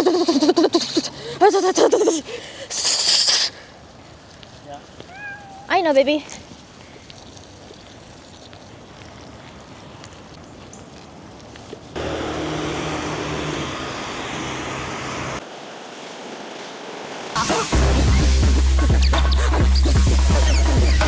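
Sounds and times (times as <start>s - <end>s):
street traffic: 9.1s - 21.0s
low engine hum: 12.0s - 15.4s.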